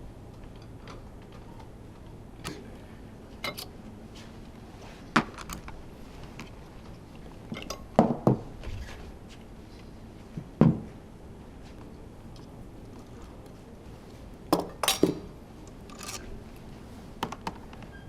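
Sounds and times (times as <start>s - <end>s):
metal tools clinking: 14.6s - 16.4s.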